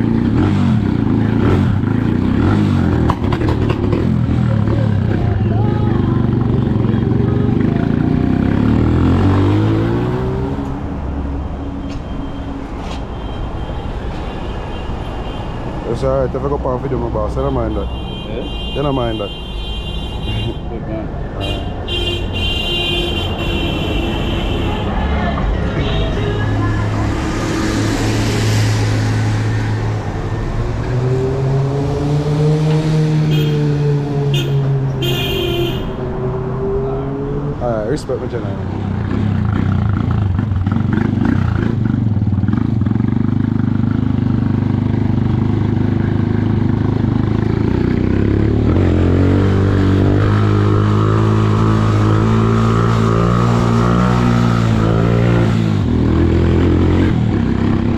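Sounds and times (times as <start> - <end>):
motorcycle engine accelerating: 0.0 - 10.7.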